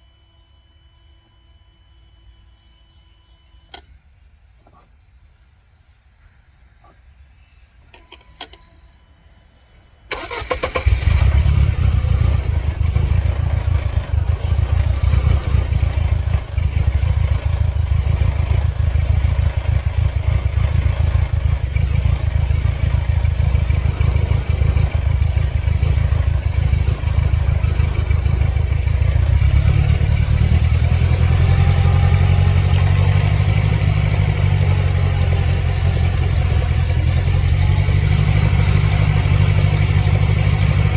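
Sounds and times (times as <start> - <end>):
car engine starting and running: 10.0 - 40.9.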